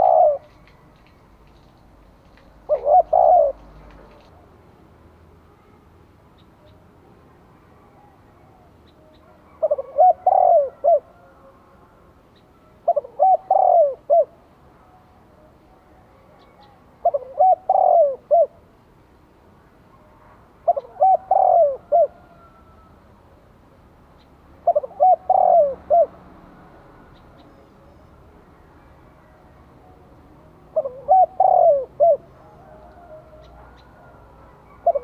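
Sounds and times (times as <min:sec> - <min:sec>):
dove cooing: 0:00.0 - 0:01.0, 0:02.5 - 0:04.4, 0:07.8 - 0:18.7, 0:19.9 - 0:23.0, 0:24.2 - 0:28.1, 0:30.6 - 0:35.0.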